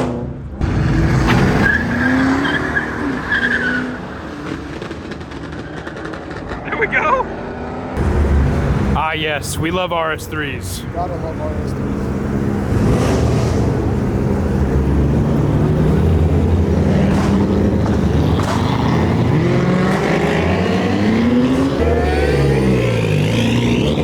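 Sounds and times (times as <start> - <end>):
car engine accelerating hard: 11.0 - 24.0.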